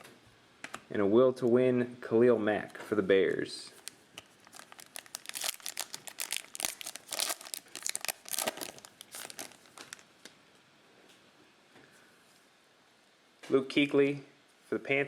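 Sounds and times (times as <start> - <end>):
foil wrapper crinkling and tearing: 3.8 - 10.1.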